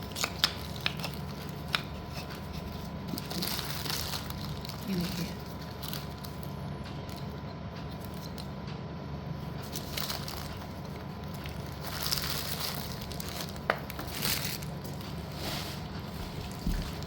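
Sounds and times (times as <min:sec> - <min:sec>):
rustling crunch of handling: 0:00.0 - 0:08.6, 0:09.2 - 0:17.0.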